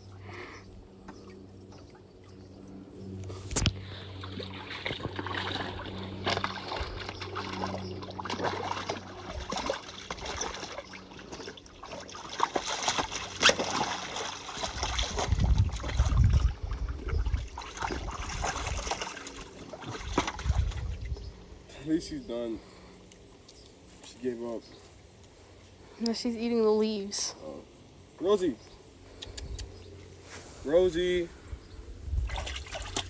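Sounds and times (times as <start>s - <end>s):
dog splashing in water: 4.1s - 21.0s, 32.2s - 33.0s.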